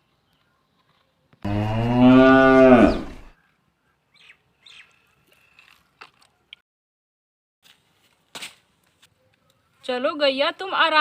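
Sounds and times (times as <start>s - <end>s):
cow mooing: 1.5s - 3.3s.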